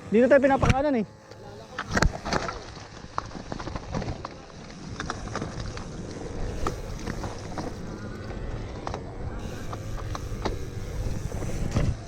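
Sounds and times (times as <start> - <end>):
bike tyres on gravel: 0.0 - 12.0
stones and bike rattling: 0.6 - 12.0
wind buffeting microphone: 4.8 - 12.0.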